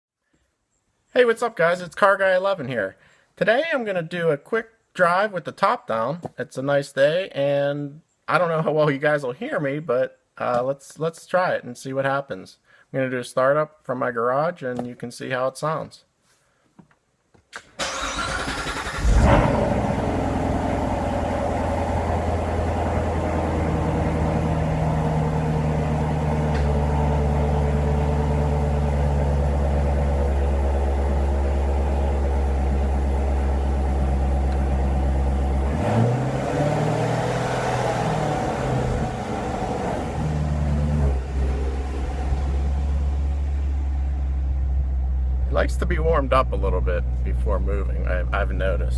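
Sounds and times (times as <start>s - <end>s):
starter motor cranking: 17.8s - 19.3s
car engine idling: 17.9s - 36.6s, 37.2s - 48.9s.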